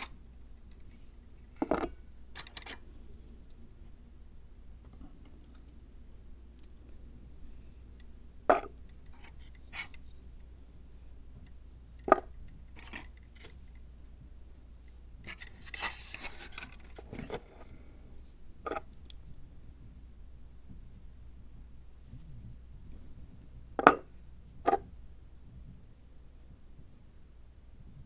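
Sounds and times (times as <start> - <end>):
scraping and rustling: 15.2 - 17.8.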